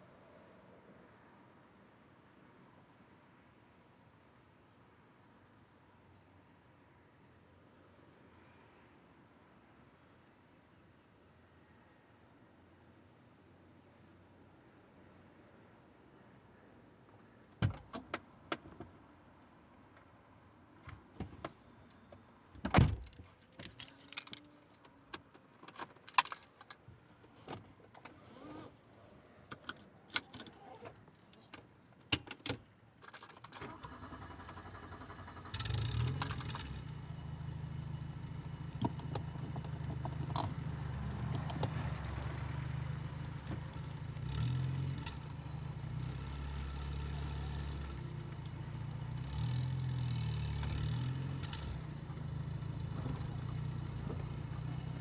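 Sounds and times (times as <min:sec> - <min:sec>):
clicks and knocks in car cabin: 0:17.6 - 0:19.0, 0:20.8 - 0:24.5, 0:38.7 - 0:42.8
keys jangling: 0:22.7 - 0:24.9, 0:25.6 - 0:26.8, 0:33.0 - 0:33.7, 0:36.0 - 0:36.8
car engine starting and idling: 0:33.4 - 0:55.0.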